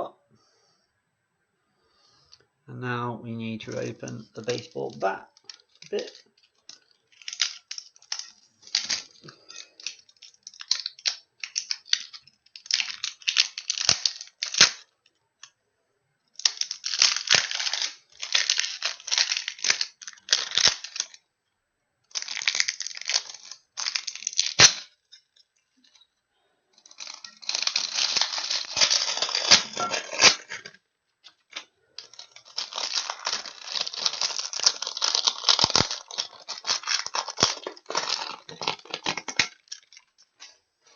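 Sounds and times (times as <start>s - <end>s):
packaging wrap tearing and crinkling: 3.7s - 14.9s, 16.4s - 21.2s, 22.1s - 25.0s, 26.8s - 40.5s.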